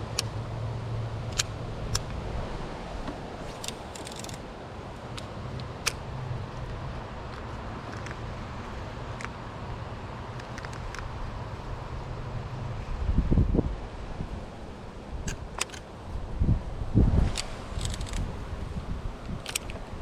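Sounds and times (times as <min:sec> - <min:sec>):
sharp clicks and ticks: 0:01.3 - 0:02.2, 0:03.6 - 0:04.4, 0:06.6 - 0:08.2, 0:10.3 - 0:11.2, 0:17.3 - 0:18.2.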